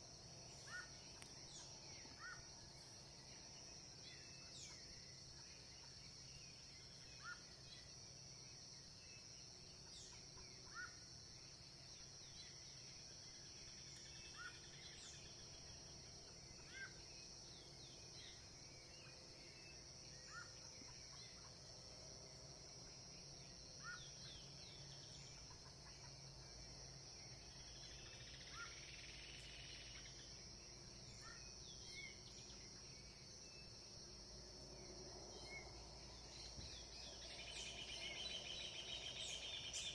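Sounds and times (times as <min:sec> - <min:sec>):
bird chirps: 0:35.4 - 0:39.9.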